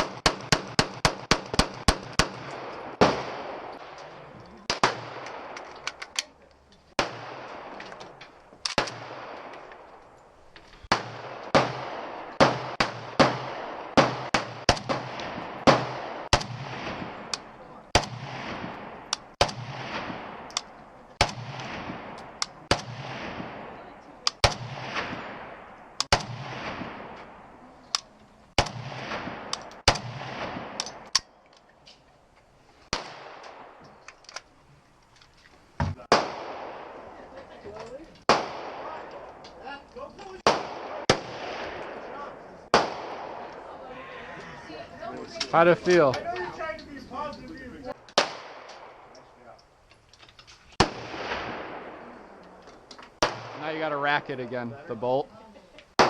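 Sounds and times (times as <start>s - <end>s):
gunshots with long echo: 0.0s - 6.0s, 6.9s - 10.1s, 10.8s - 27.7s, 28.5s - 31.4s, 32.9s - 33.8s, 36.0s - 37.5s, 38.2s - 39.4s, 40.3s - 43.9s, 47.9s - 49.2s, 50.8s - 52.5s, 53.2s - 54.3s.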